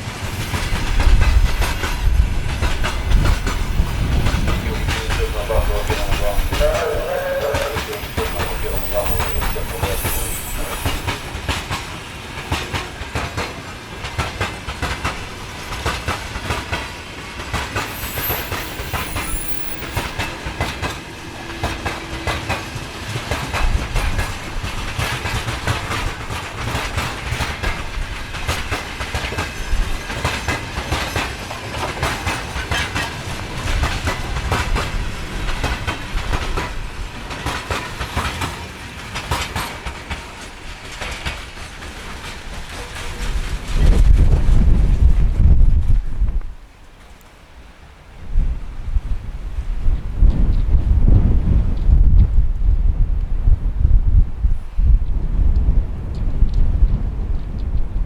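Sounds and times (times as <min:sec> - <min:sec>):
train wheels clattering over rail joints: 0:00.0 - 0:05.0, 0:10.2 - 0:45.3
low train rumble: 0:00.0 - 0:58.0.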